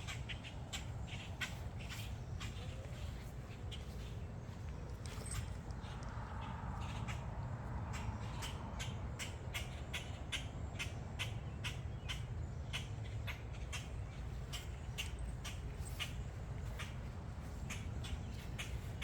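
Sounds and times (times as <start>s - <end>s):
footsteps on a trail: 0.8s - 6.4s, 14.3s - 19.0s.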